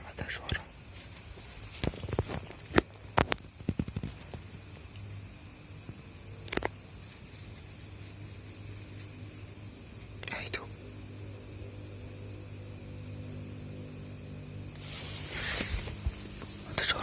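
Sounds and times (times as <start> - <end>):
high insect trill: 0.0 - 17.0
small ticks: 0.2 - 11.4.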